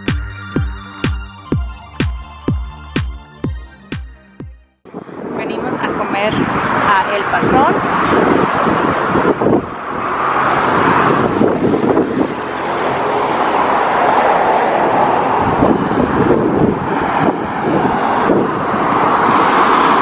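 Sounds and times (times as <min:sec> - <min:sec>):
road noise of moving truck: 0:04.8 - 0:20.0
wind buffeting microphone: 0:04.9 - 0:20.0.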